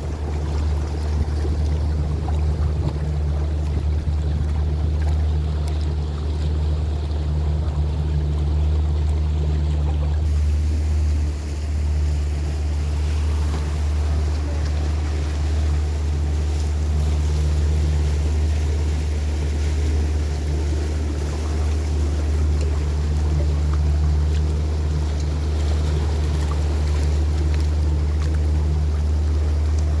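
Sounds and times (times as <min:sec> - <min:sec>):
wind on microphone: 0:00.0 - 0:09.4
boat motor droning: 0:00.0 - 0:30.0
water rushing past hull: 0:00.0 - 0:30.0.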